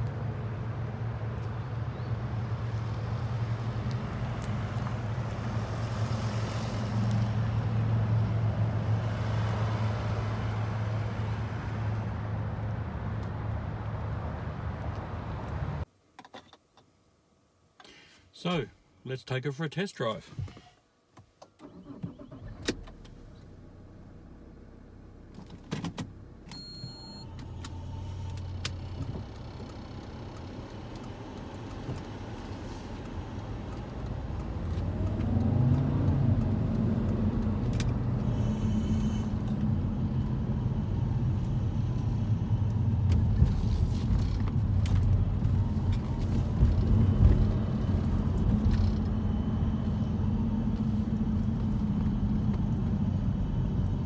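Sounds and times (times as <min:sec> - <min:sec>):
diesel car engine: 0:00.0 - 0:15.9, 0:21.4 - 0:54.0
road noise: 0:00.0 - 0:15.9, 0:21.6 - 0:54.0
short high beep: 0:26.6 - 0:27.3.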